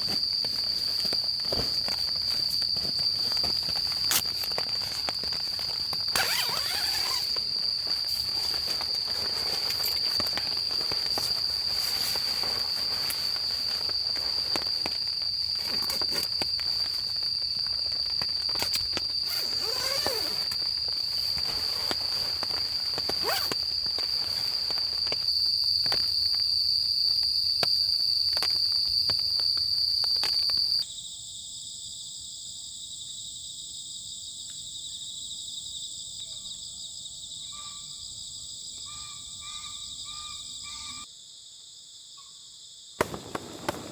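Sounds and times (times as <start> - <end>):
clicks and rustles: 0.0 - 30.8
insects trilling: 0.0 - 43.9.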